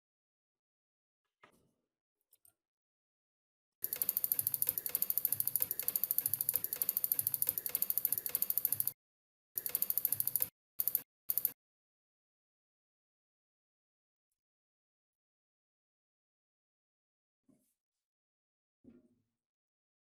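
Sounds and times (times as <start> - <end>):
ratchet clicking rapidly: 3.8 - 9.0, 9.6 - 11.6.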